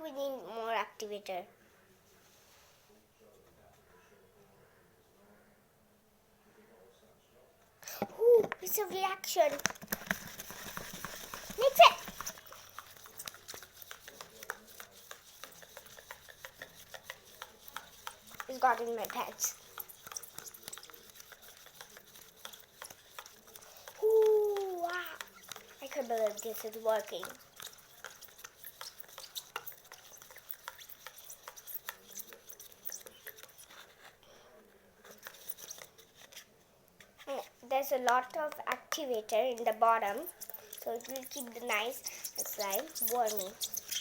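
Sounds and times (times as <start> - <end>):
slime mixed by hand: 7.9 - 44.0
slime squelching and clicking: 38.1 - 44.0.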